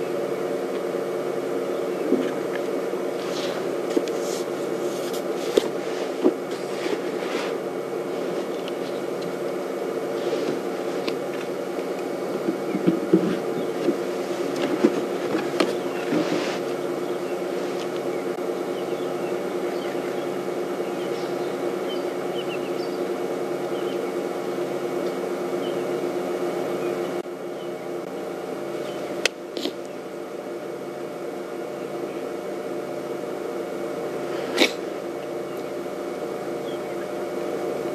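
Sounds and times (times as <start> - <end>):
vehicle engine idling: 0.0 - 37.9
faint bird chirps: 18.1 - 24.3, 25.6 - 26.0.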